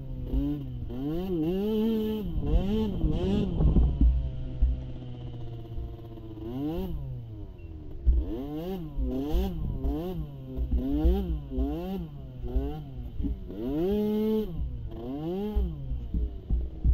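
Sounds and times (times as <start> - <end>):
small atv engine revving: 0.0 - 16.9.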